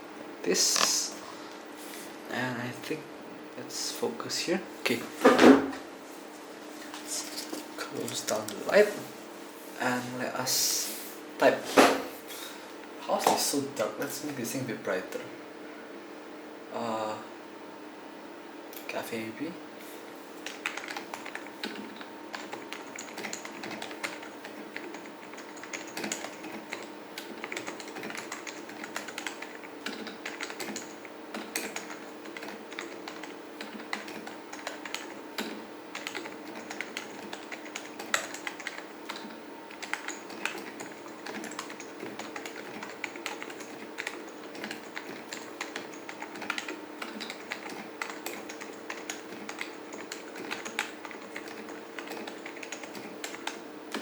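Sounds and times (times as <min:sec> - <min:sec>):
soft keyboard typing: 0:07.4 - 0:08.8, 0:20.4 - 0:54.0.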